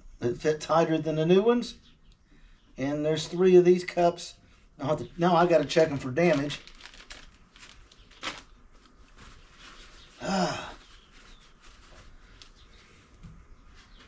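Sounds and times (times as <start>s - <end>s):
small parts clicking and rustling: 6.3s - 8.4s.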